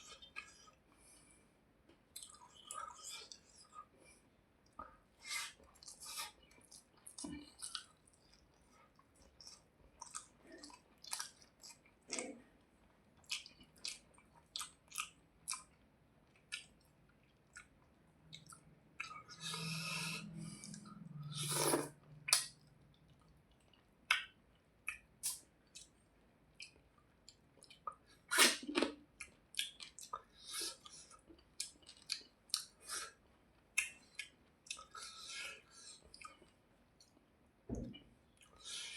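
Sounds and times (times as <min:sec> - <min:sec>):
chewing and wet mouth smacks: 0:02.1 - 0:03.9, 0:04.6 - 0:35.1, 0:35.9 - 0:37.3.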